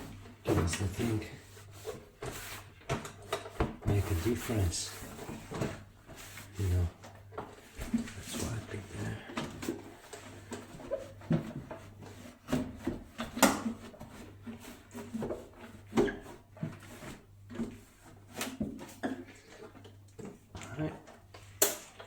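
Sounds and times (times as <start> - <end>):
cloth wiping a microwave: 0.0 - 19.4.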